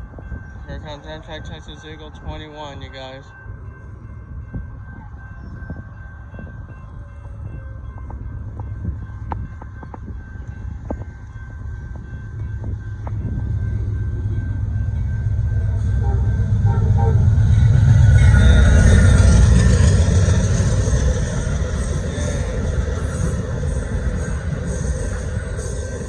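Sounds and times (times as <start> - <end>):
diesel locomotive rumbling: 0.0 - 26.0.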